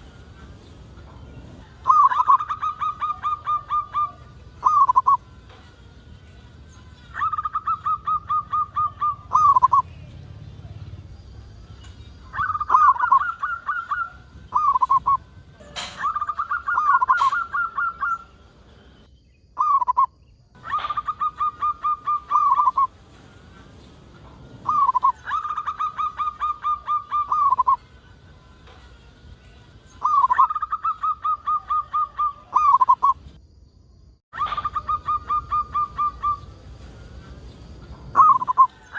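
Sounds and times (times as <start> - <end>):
dove cooing: 1.5 - 5.2, 7.1 - 10.0, 12.3 - 18.4, 20.6 - 23.0, 24.6 - 27.8, 30.0 - 33.2, 34.4 - 36.9, 37.7 - 38.9.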